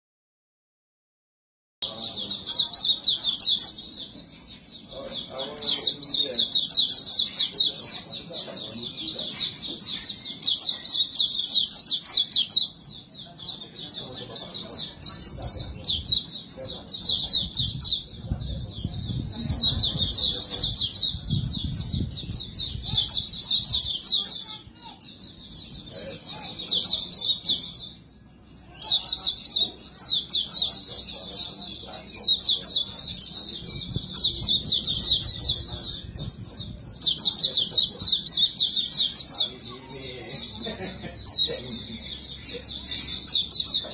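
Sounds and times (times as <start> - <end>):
bird twittering song: 1.8 - 43.9.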